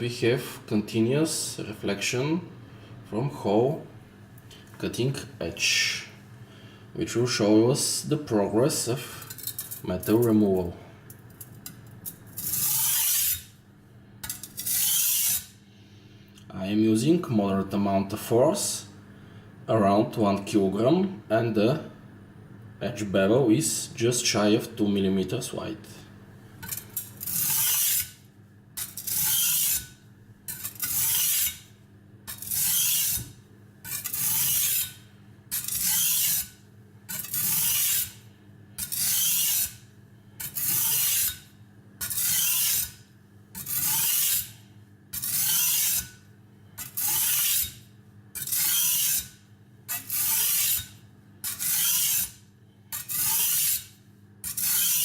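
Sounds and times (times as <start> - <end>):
blade rasping on sharpening stone: 12.4 - 13.5, 14.2 - 15.5, 26.6 - 28.2, 28.8 - 31.6, 32.3 - 38.2, 38.8 - 39.8, 40.4 - 43.0, 43.6 - 46.2, 46.8 - 47.8, 48.4 - 55.0.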